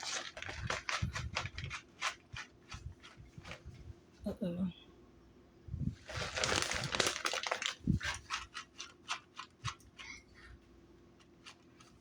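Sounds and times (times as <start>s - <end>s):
food packaging crinkling: 0.0s - 3.7s, 6.0s - 10.2s
packaging shaking rattles: 0.0s - 3.8s, 6.0s - 10.2s.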